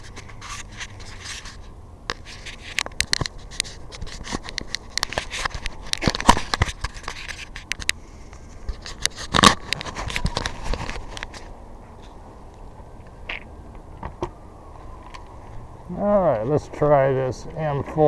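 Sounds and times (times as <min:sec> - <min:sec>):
scratchy scraping: 0:00.0 - 0:12.2
objects clicking and tapping: 0:02.1 - 0:11.4.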